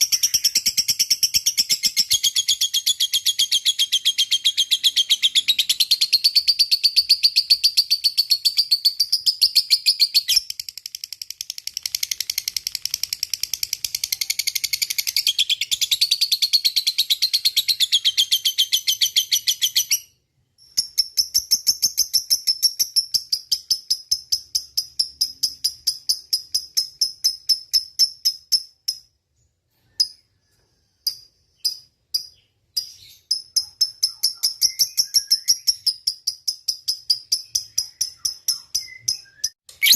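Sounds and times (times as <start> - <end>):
lovebird shrill chirping: 37.2 - 39.9.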